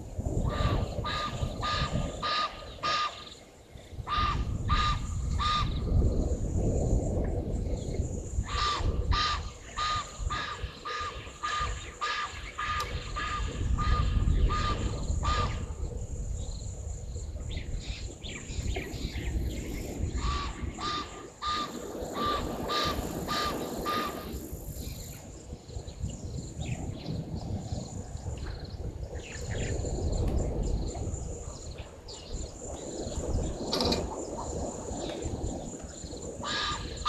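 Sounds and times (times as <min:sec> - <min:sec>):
high insect drone: 0:00.0 - 0:37.0
bird harsh repeated calls: 0:00.5 - 0:05.9, 0:08.4 - 0:15.8, 0:19.8 - 0:24.4, 0:36.4 - 0:37.0.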